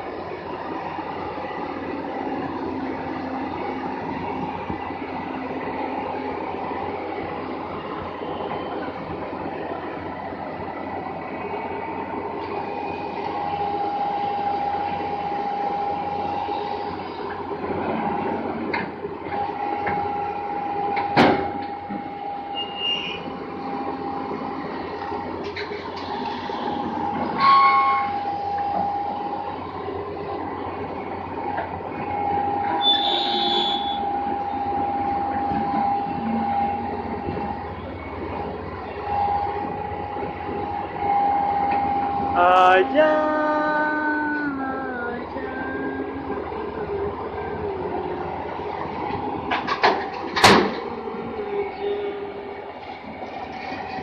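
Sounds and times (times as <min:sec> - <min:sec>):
heavy vehicle running: 0:00.0 - 0:54.0
steady whine: 0:00.0 - 0:54.0
heavy machinery rumbling: 0:23.0 - 0:54.0.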